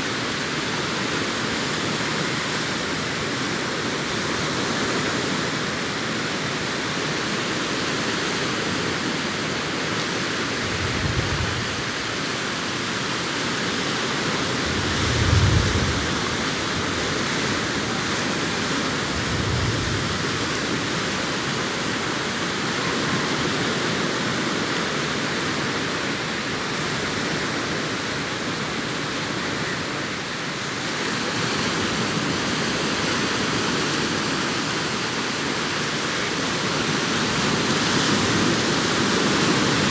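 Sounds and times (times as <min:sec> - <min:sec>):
surf breaking on beach: 0:09.9 - 0:30.2.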